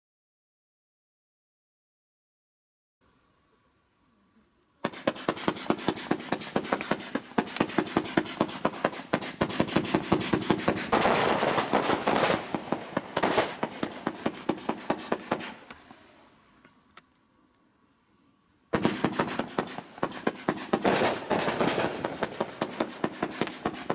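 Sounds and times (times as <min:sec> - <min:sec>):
firework cake firing shots: 0:04.8 - 0:15.9, 0:18.7 - 0:23.9.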